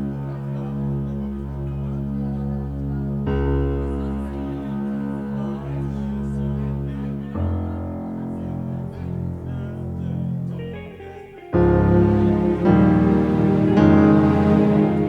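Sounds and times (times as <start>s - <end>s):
band playing sustained chords: 8.9s - 15.0s.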